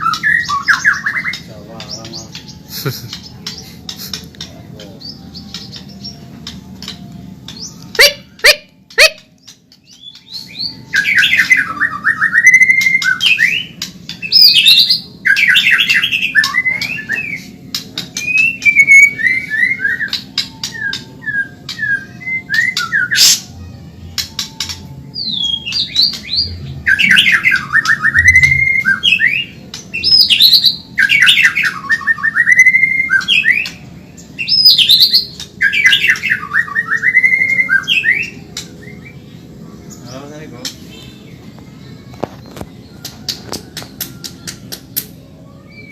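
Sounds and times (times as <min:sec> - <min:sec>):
bird singing: 0:00.0 - 0:45.9
sharp clicks: 0:43.0 - 0:45.2.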